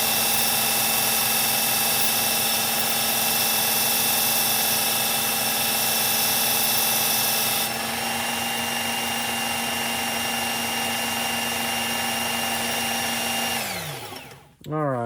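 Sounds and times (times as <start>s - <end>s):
belt sharpener motor whine: 0.0s - 14.5s.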